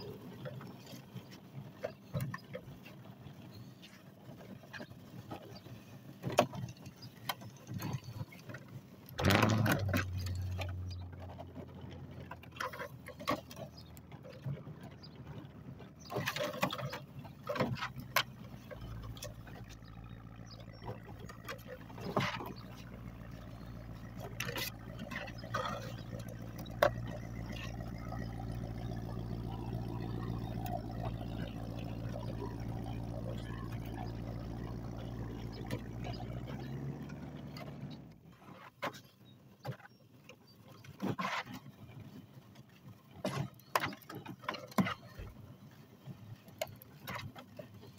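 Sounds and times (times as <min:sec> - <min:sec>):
sweeper wheels and brushes rattling: 0:00.0 - 0:39.1
knocks and scrapes: 0:06.2 - 0:39.9.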